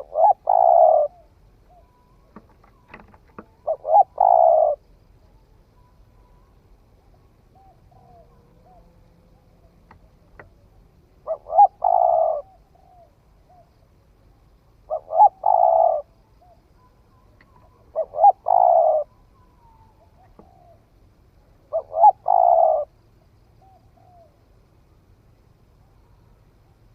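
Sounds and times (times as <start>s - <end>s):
faint short bird calls: 0.0s - 4.8s, 5.8s - 24.5s
dove cooing: 0.0s - 5.0s, 5.8s - 13.9s, 14.8s - 24.5s.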